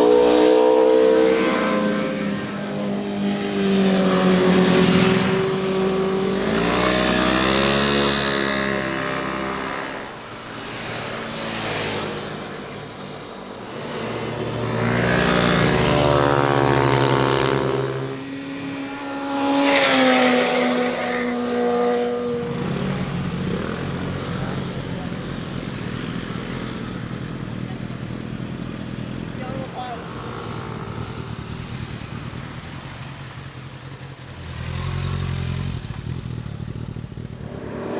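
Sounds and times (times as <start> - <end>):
motorcycles revving past: 0.0 - 37.9.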